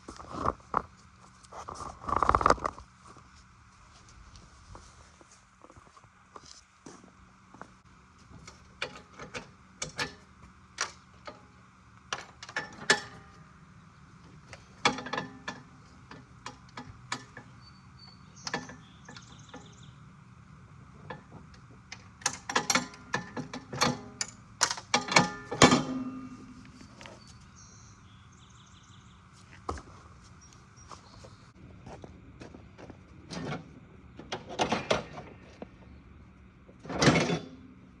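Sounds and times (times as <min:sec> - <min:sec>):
metal clanks and rattles of tools: 0:08.4 - 0:11.5, 0:12.1 - 0:13.4, 0:14.5 - 0:17.6, 0:18.4 - 0:19.7, 0:21.0 - 0:27.2, 0:34.3 - 0:35.4, 0:36.8 - 0:37.7
ringing metal clank: 0:22.5 - 0:26.7.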